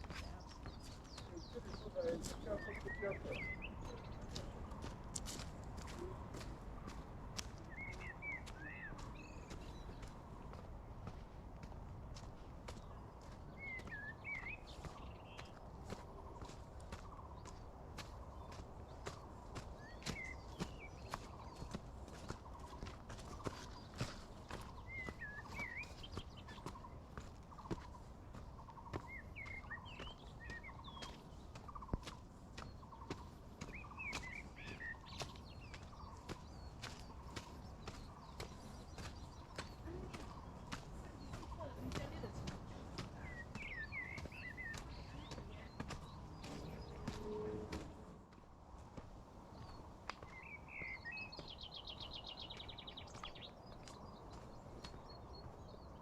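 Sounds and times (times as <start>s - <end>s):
birds chirping: 0.0s - 56.0s
footsteps on a trail: 0.0s - 56.0s.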